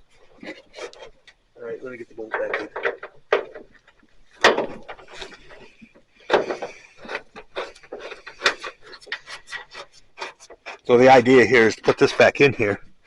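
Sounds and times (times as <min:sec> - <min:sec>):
metal knocks and clunks: 0:02.2 - 0:08.7.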